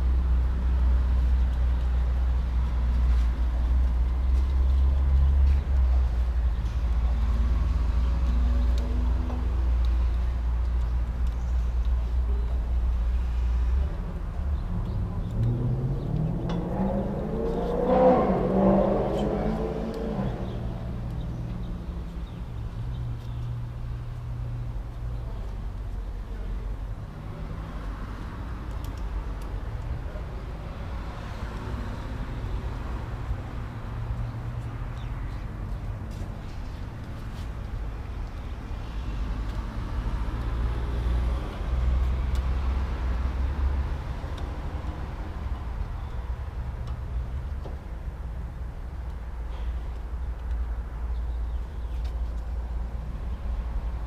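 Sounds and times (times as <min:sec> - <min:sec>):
vehicle low hum: 0:00.0 - 0:54.0
engine note rising and falling: 0:14.5 - 0:21.4.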